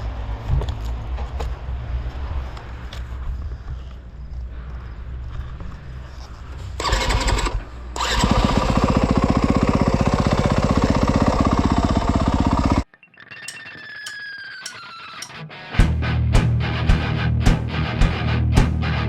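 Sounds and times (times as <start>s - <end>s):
dirt bike engine starting and running: 6.8s - 12.9s.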